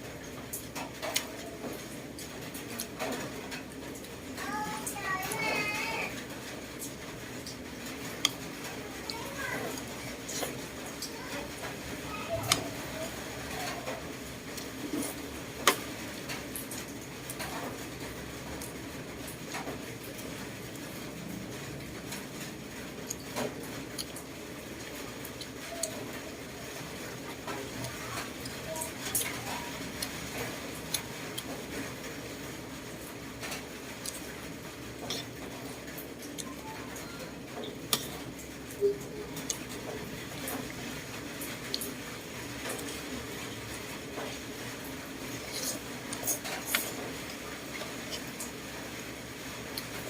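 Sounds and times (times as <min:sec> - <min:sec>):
person chewing: 0:23.9 - 0:26.0, 0:34.0 - 0:34.4, 0:35.0 - 0:36.6, 0:37.7 - 0:38.1, 0:45.2 - 0:48.6
mouth sounds of eating: 0:35.0 - 0:43.4, 0:45.1 - 0:48.6.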